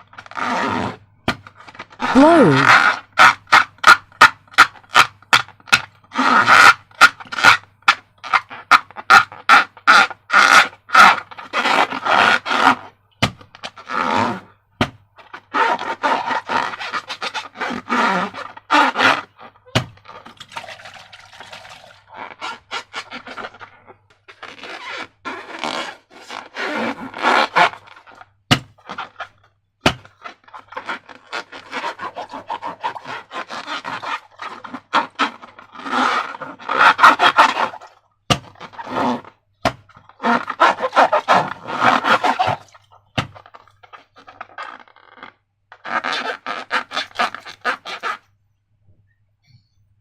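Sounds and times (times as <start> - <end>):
slime crackling and scraping: 15.5 - 48.2.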